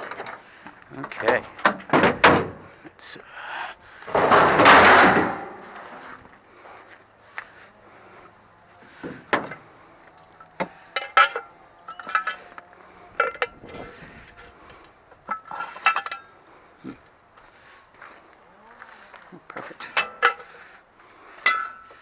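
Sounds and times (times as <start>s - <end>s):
aluminum scrap clinking and clanking: 4.1s - 6.0s, 10.4s - 14.0s, 15.2s - 16.4s, 19.6s - 20.6s, 21.4s - 22.0s.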